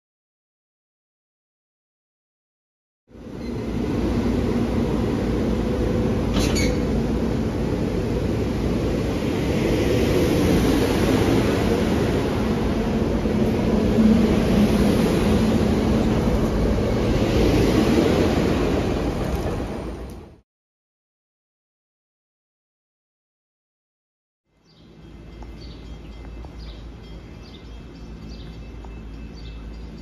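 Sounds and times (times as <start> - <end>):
train wheels rumbling on rail: 3.2 - 20.4, 24.9 - 30.0.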